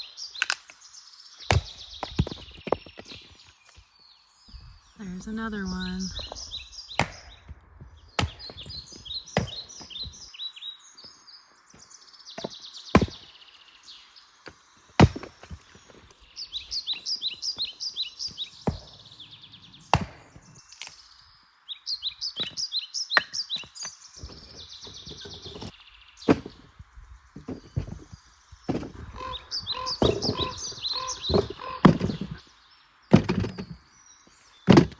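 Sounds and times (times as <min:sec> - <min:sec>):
songbird trilling: 0:04.5 - 0:07.0, 0:29.0 - 0:32.6.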